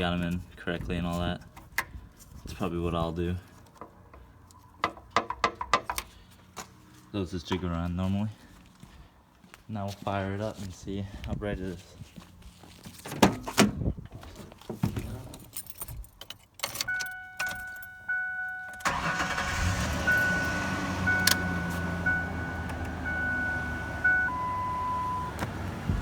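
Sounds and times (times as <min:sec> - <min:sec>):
keys and clicks: 0:15.4 - 0:19.5, 0:20.1 - 0:23.3
dashboard warning chime beeping: 0:16.8 - 0:25.4
car engine starting and idling: 0:16.8 - 0:26.0.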